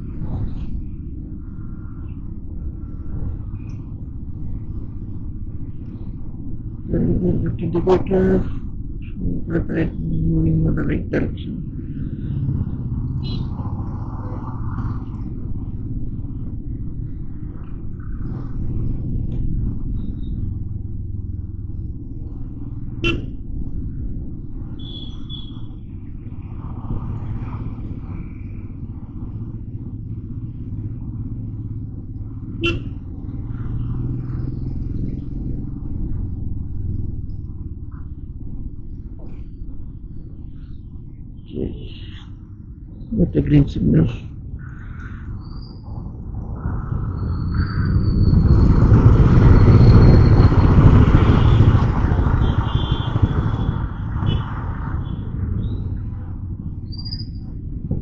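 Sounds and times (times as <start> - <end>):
wind rumble: 0.0 - 58.0
motorcycle engine: 1.4 - 40.9, 47.2 - 58.0
motorcycle engine accelerating: 46.9 - 58.0.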